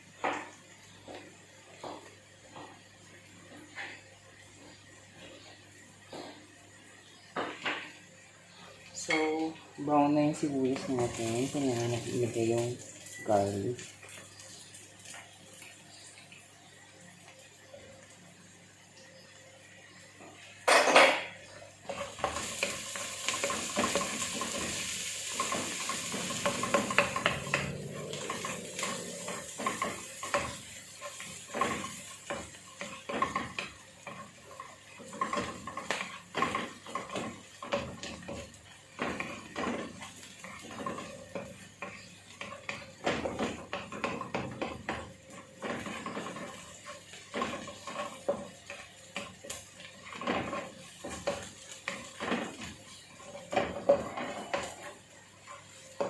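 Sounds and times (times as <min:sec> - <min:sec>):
onions sizzling in a frying pan: 0:00.0 - 0:56.0
utensil stirring against pan: 0:10.0 - 0:16.0, 0:21.4 - 0:56.0.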